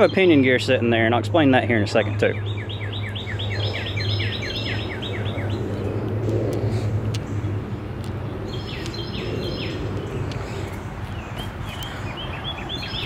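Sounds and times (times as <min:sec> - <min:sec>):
steady low hum: 0:00.0 - 0:13.0
small bird chirping: 0:02.1 - 0:06.0.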